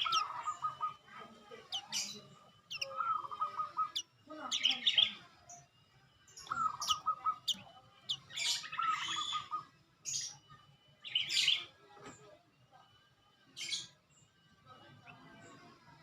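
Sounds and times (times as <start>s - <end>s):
songbird singing: 0.0s - 11.7s.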